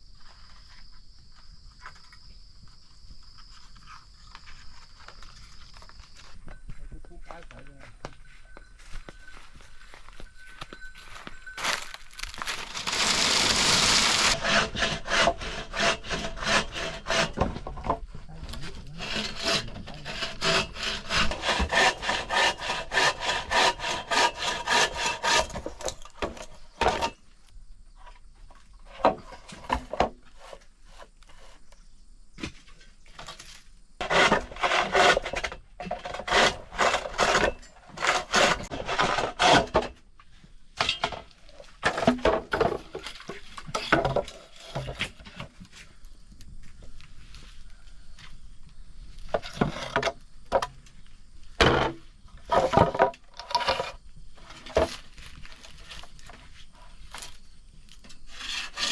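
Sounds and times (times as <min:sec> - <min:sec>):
hand saw cutting wood: 0:12.5 - 0:17.9, 0:18.5 - 0:27.2, 0:34.0 - 0:40.0, 0:58.3 - 0:58.9.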